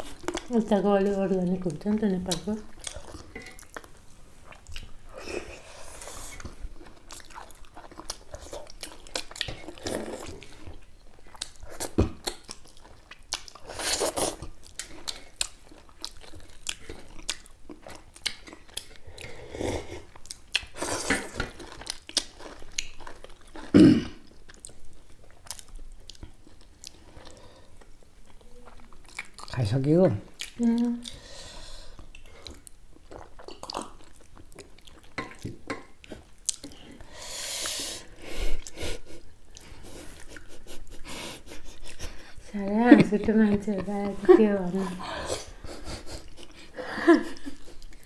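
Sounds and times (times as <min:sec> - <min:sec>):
wet chewing: 0:00.0 - 0:31.2, 0:31.9 - 0:37.1.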